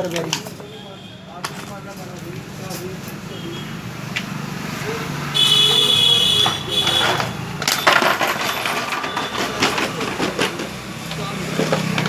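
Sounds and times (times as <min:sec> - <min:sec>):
small metal parts clinking: 0:06.9 - 0:10.7.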